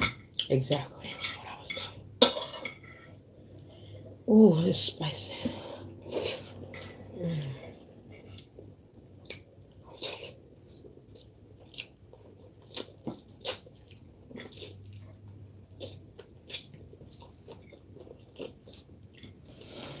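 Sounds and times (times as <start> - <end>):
chewing: 11.0 - 19.8.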